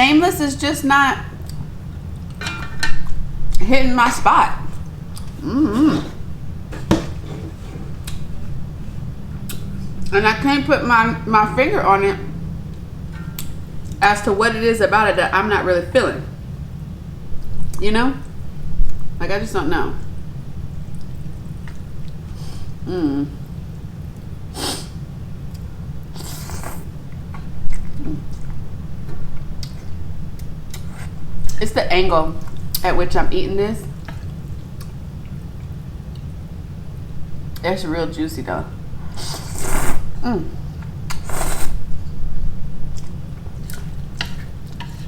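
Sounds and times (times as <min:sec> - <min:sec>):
steady low hum: 0:00.0 - 0:45.0
noodle slurping: 0:26.2 - 0:26.9, 0:39.0 - 0:40.1, 0:41.1 - 0:41.8
chewing with small clicks: 0:29.3 - 0:30.9, 0:34.0 - 0:36.4
chewing: 0:42.9 - 0:45.0.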